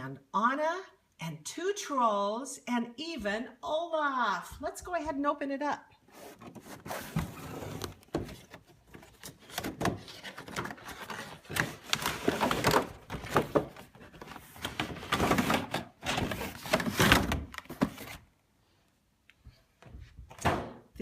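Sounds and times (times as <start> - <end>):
packaging rustling and scraping: 6.1 - 18.3.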